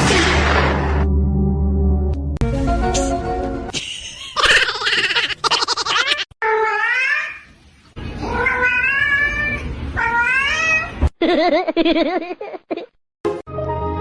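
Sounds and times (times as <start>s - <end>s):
cat meowing: 8.2s - 10.9s.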